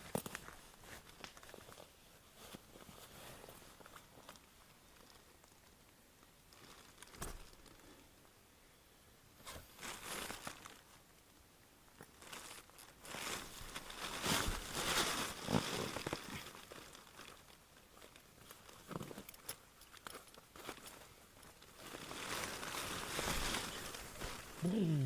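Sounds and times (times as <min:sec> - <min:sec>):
nylon fabric rustling: 0:12.2 - 0:17.4, 0:20.5 - 0:25.0.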